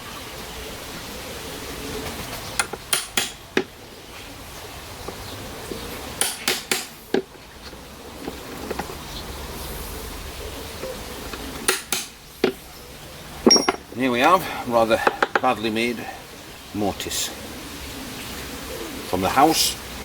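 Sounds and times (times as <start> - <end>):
hammer striking steel chisel: 6.2 - 7.2, 11.7 - 12.6.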